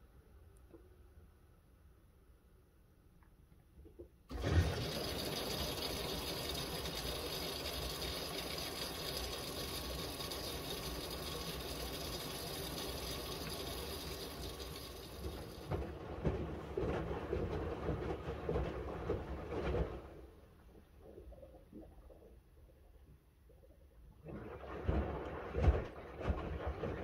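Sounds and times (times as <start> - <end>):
washing machine filling with water: 4.3 - 20.4, 24.2 - 27.0.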